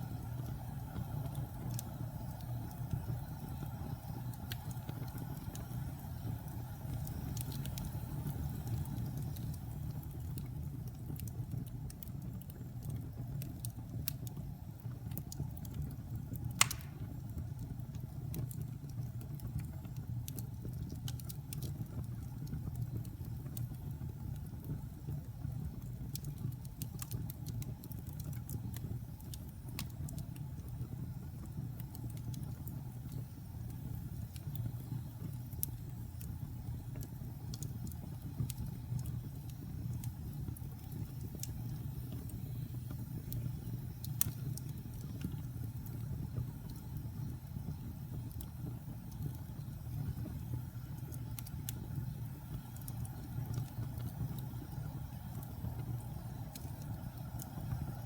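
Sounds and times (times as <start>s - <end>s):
low rumble of flames: 0.0s - 58.0s
small fire crackles: 0.0s - 58.0s
loud sharp fire pop: 16.6s - 17.2s.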